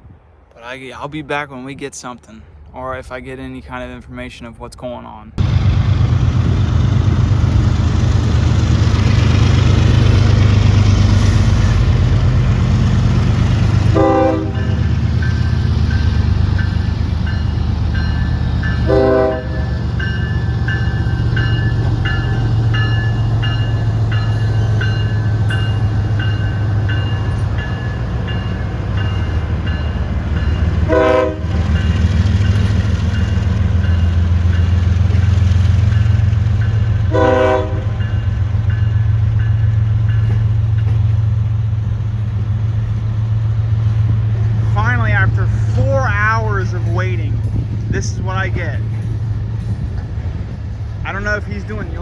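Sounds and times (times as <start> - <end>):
diesel locomotive rumble: 5.3 - 52.0
horn toots: 13.9 - 14.8, 18.8 - 19.8, 30.9 - 31.6, 37.1 - 38.0
locomotive bell ringing: 14.0 - 41.5, 45.2 - 50.2.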